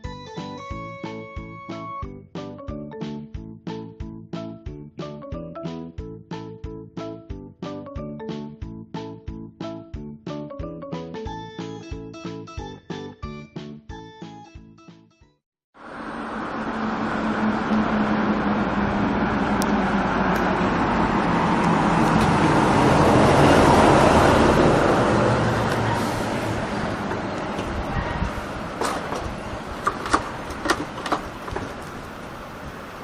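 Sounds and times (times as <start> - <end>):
motor vehicle running: 15.8 - 33.0.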